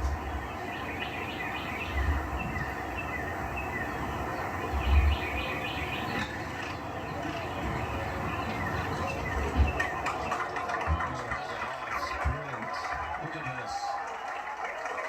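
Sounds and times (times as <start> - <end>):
steady background hiss: 0.0 - 12.5
small birds chirping: 0.0 - 13.8.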